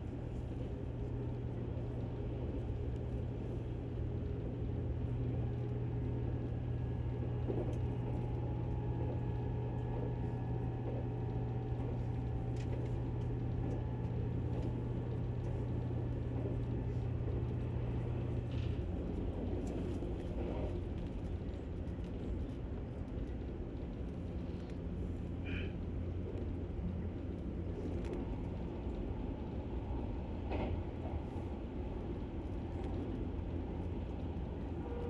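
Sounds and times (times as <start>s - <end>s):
electric train humming: 23.4s - 35.0s.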